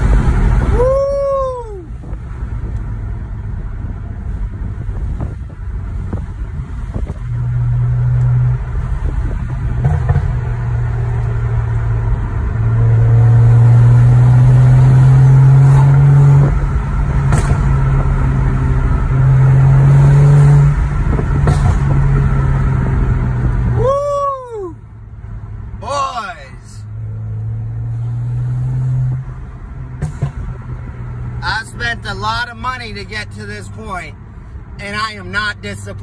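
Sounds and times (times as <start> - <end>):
car engine drone in cabin: 0.0 - 36.0
exhaust pops: 9.1 - 10.6, 15.7 - 18.3, 20.8 - 23.6.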